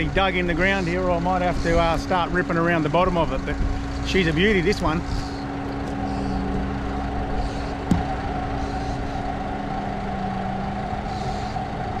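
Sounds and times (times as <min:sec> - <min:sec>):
bulldozer diesel engine running: 0:00.0 - 0:12.0
sharp knock: 0:07.9 - 0:08.1.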